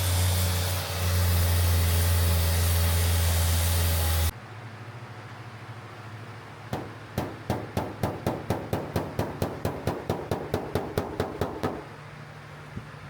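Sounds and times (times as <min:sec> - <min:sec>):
low shop hum: 0:00.0 - 0:13.0
hammer tapping on steel panel: 0:06.7 - 0:11.9.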